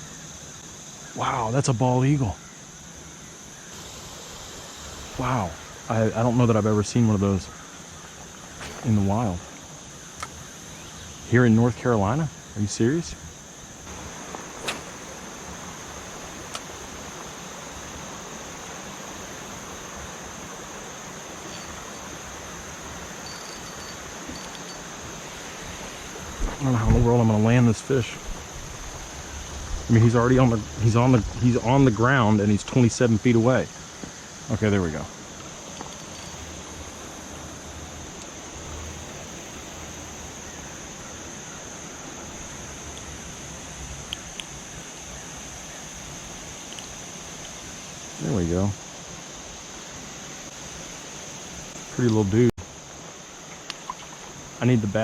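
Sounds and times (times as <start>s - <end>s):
high-pitched insect drone: 0.0s - 55.0s
rushing haze: 3.7s - 42.8s
river water rushing: 13.8s - 32.4s
small click: 14.6s - 15.0s.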